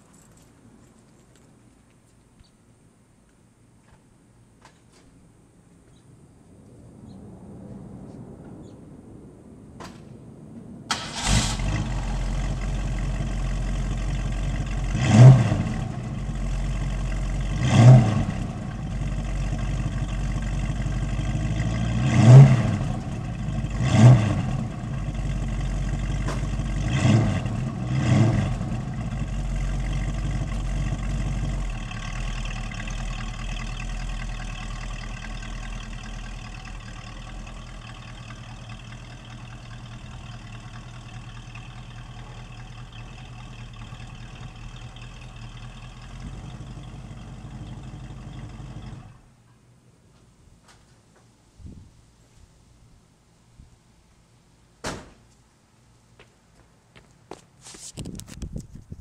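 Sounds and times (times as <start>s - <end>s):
car engine starting: 10.9s - 49.4s
car engine idling with throttle blips: 10.9s - 49.6s.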